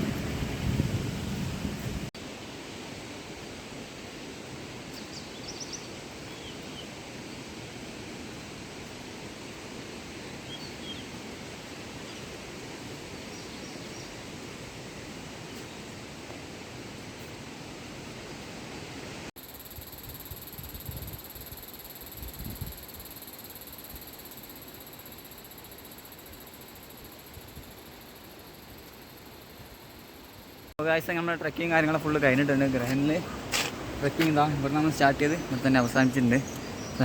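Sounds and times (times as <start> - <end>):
stream water rushing: 30.8 - 37.0.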